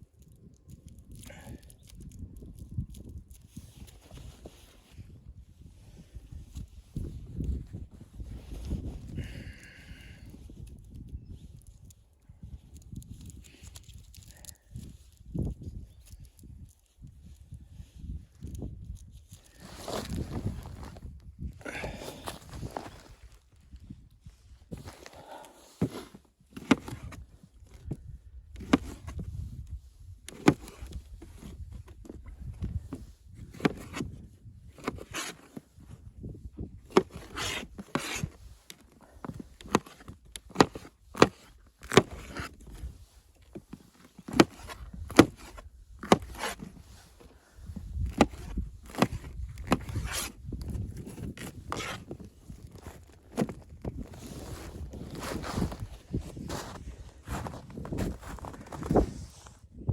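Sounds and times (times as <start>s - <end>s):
rubbing and scraping: 48.0s - 59.6s.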